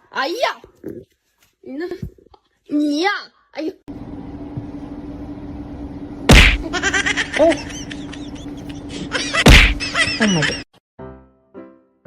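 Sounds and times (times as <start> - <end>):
steady low hum: 3.9 - 10.6
loud thumps: 6.3 - 6.7, 9.4 - 9.9.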